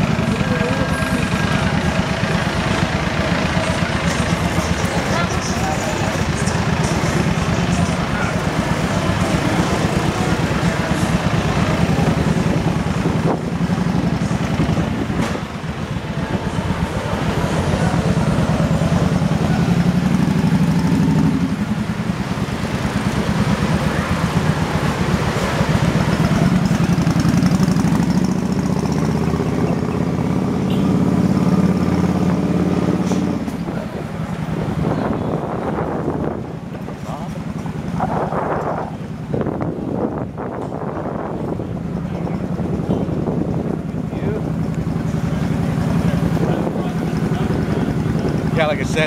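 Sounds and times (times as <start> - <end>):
motorbike engine running: 0.0 - 49.0
wind buffeting microphone: 33.5 - 44.6.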